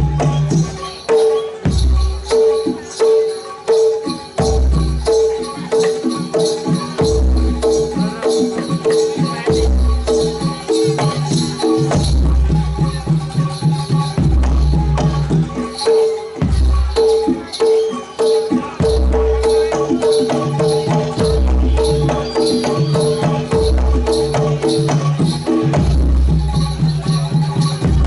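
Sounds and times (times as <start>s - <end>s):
drum strokes: 0.0s - 28.0s
jingling high percussion: 0.0s - 28.0s
pitched metal percussion melody: 0.0s - 28.0s
deep low beat: 21.0s - 28.0s.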